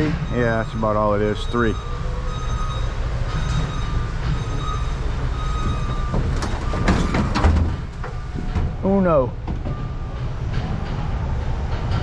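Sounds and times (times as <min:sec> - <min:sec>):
high beeping tone: 0:00.0 - 0:06.8
heavy machinery engine rumbling: 0:00.0 - 0:12.0.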